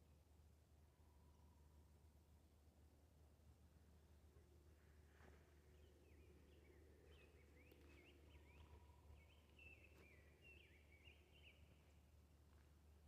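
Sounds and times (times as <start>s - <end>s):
songbird chirping: 5.6s - 12.6s.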